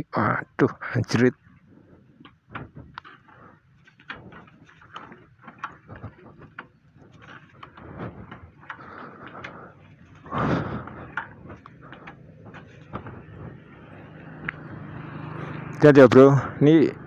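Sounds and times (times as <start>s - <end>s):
faint rustle: 1.4s - 14.2s.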